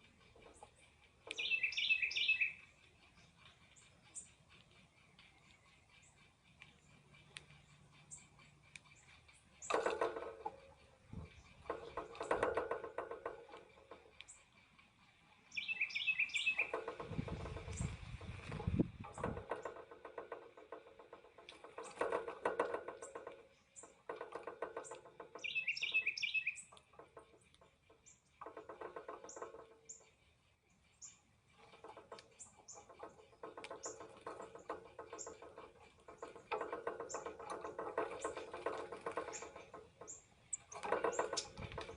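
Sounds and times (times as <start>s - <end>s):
high bird trill: 0.0s - 9.8s, 14.1s - 17.0s, 25.3s - 26.8s
birds buzzy chattering: 0.0s - 41.9s
short high bird chirps: 1.4s - 2.6s, 15.5s - 16.7s, 25.4s - 26.6s.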